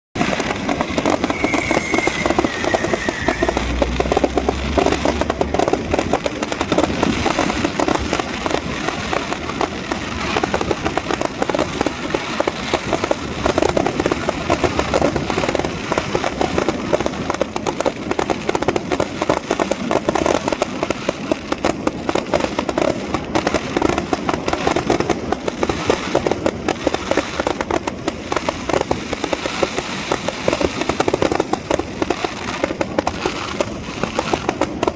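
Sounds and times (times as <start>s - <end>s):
fireworks bangs and crackles: 0.1s - 34.9s
falling firework whistle: 0.2s - 7.5s.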